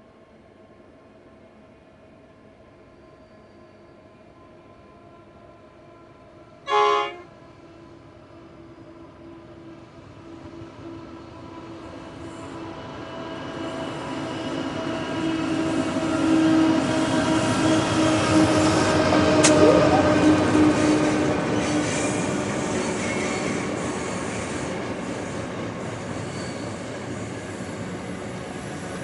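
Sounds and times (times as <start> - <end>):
diesel locomotive horn blast: 6.6 - 7.4
sharp click: 19.4 - 20.1.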